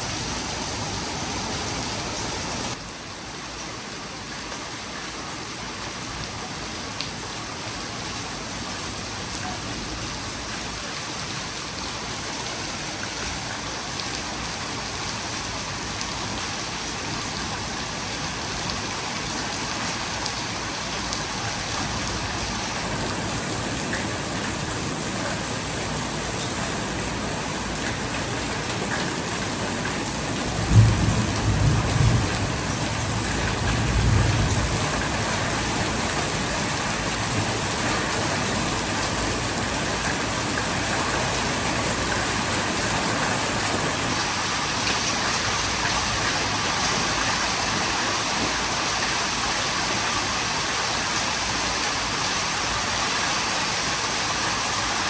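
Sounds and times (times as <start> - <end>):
heavy rain pouring: 0.0 - 55.0
deep thunder rumble: 30.6 - 35.2.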